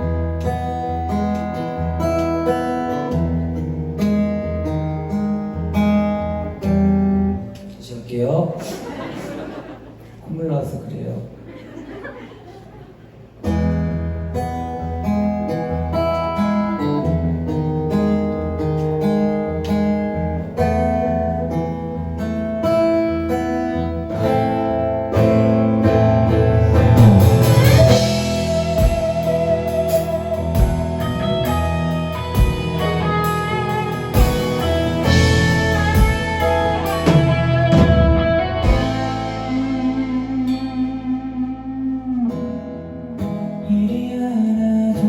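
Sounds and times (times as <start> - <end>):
picked guitar notes: 0.0 - 7.8, 13.3 - 44.1
sustained low notes: 26.4 - 42.3.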